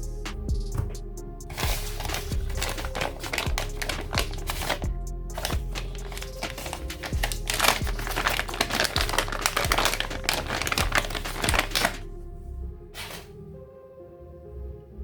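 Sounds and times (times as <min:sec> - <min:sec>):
background music with steady beat: 0:00.0 - 0:15.0
plastic packaging crinkling: 0:01.5 - 0:12.0.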